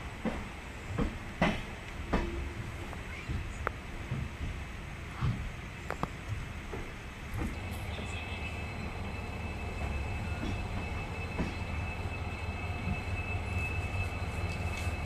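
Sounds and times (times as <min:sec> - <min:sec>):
train coaches rumbling: 0:00.0 - 0:15.0
steady high whine: 0:07.4 - 0:15.0.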